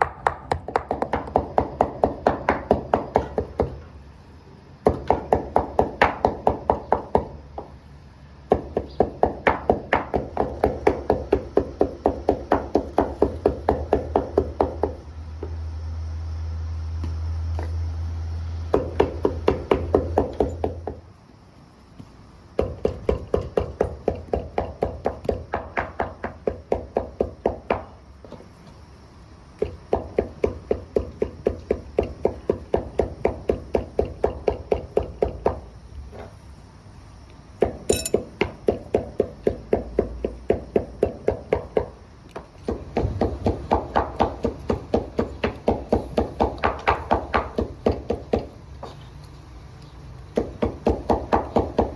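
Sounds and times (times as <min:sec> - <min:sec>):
light clink: 0:37.9 - 0:38.3.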